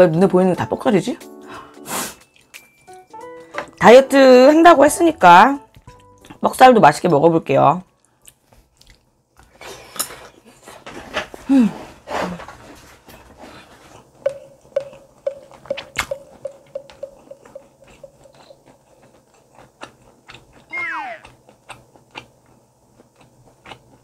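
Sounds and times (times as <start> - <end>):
chewing and wet mouth sounds: 5.6 - 7.2, 7.8 - 9.6, 13.9 - 24.0
regular ticking: 14.2 - 20.6
person humming: 20.7 - 21.3.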